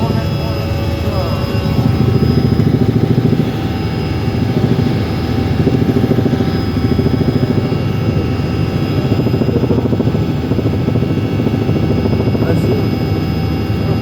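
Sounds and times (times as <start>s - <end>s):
high-pitched tones: 0.0s - 7.8s
helicopter rotor beat: 0.0s - 14.0s.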